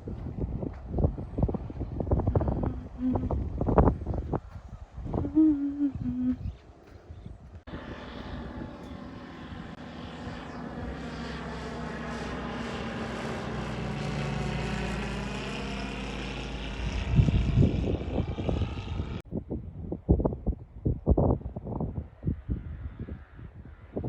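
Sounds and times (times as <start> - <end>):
propeller airplane engine drone: 0.0 - 19.2
wind buffeting microphone: 0.0 - 24.0.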